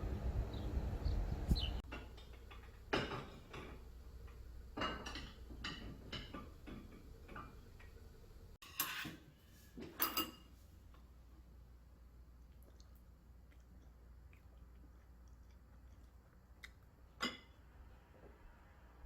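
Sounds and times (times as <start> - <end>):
dishes and utensils clinking: 1.8 - 7.9, 8.6 - 10.6, 17.2 - 17.6
dishes clattering: 1.8 - 7.9, 8.6 - 10.5, 17.2 - 17.6.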